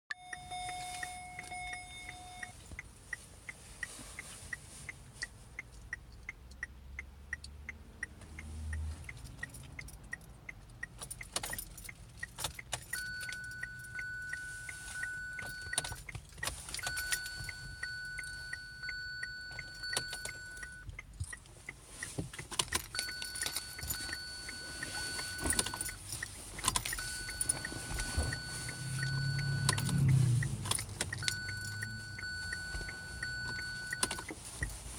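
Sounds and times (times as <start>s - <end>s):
electronic warning beep: 0.1s - 2.6s, 12.9s - 16.0s, 16.8s - 20.9s, 23.0s - 26.0s, 26.9s - 34.4s.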